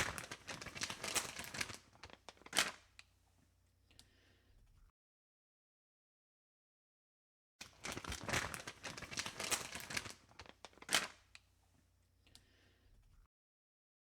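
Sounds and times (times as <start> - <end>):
crinkling rustling handling noise: 0.0 - 3.0, 7.6 - 11.5.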